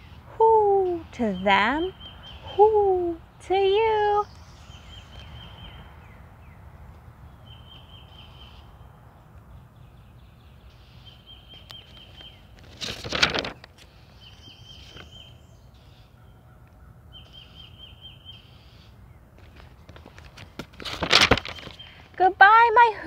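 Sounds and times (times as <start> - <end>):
paper page turning: 11.8 - 13.9, 19.4 - 21.8.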